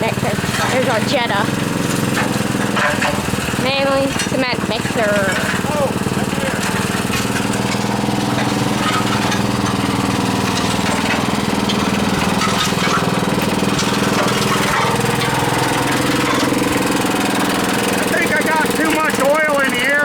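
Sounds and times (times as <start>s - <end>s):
small gasoline engine running: 0.0s - 20.0s.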